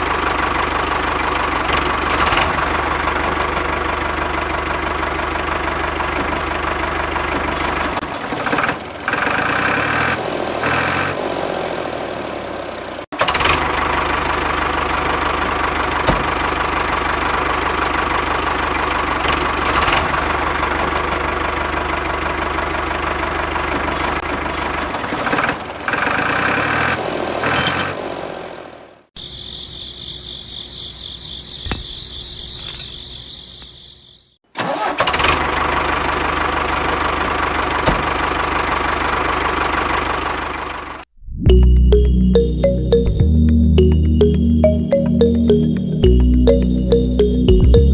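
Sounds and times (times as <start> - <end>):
engine-like running sound: 0.0 - 26.6.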